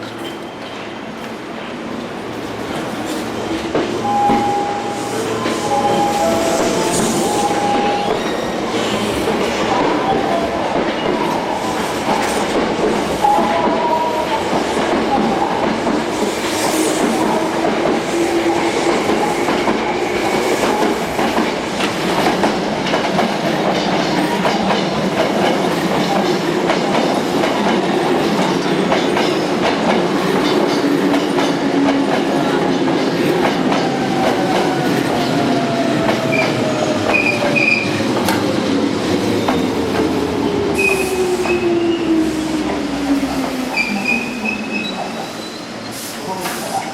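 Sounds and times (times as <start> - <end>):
train wheels on rails: 0.0 - 46.9.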